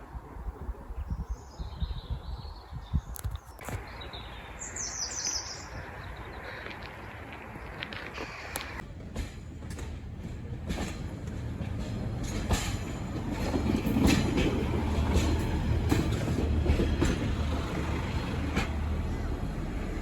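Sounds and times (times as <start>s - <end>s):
train rumbling on rails: 3.7s - 20.0s
wheels clicking on track: 5.8s - 20.0s.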